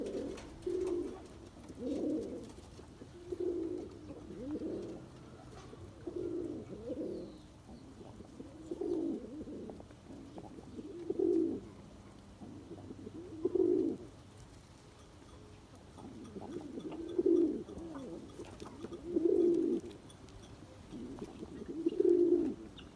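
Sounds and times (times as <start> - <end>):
pigeon cooing: 0.0 - 14.5, 15.3 - 22.9.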